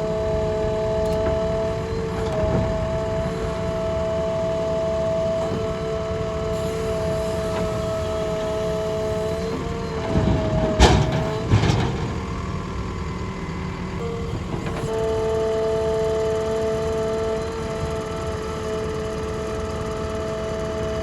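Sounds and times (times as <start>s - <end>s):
diesel engine humming: 0.0s - 21.0s
loud clunks: 6.7s - 12.8s.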